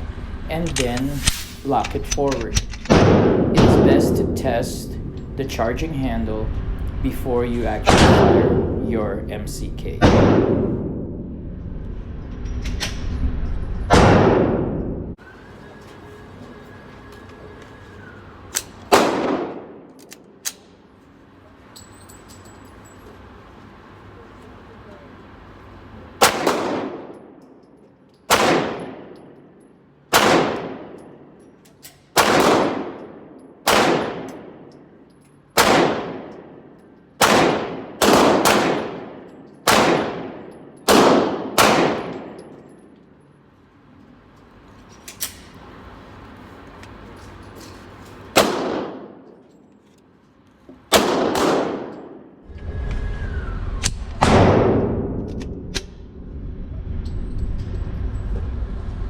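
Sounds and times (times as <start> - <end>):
pistol shots with ringing echo: 2.8 - 4.5, 7.9 - 8.8, 10.0 - 11.2, 18.9 - 20.0, 26.2 - 27.6, 28.3 - 31.4, 32.1 - 35.0, 35.6 - 43.0, 48.4 - 49.4, 50.9 - 52.4.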